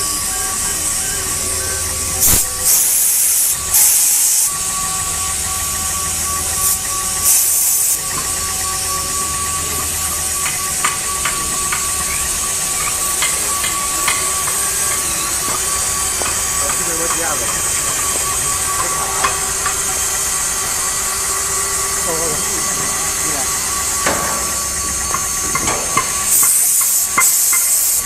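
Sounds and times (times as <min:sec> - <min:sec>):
cnc router running: 0:00.0 - 0:28.0.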